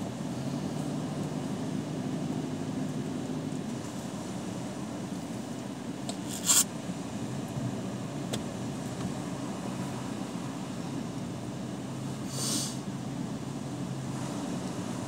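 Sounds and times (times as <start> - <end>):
vehicle engine idling: 0.0 - 15.0
brief scraping rub: 6.2 - 6.7, 12.3 - 12.8.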